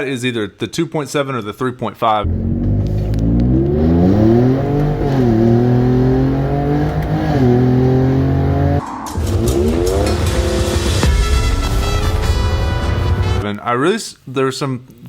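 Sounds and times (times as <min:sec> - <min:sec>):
car engine revving: 0:02.2 - 0:11.0.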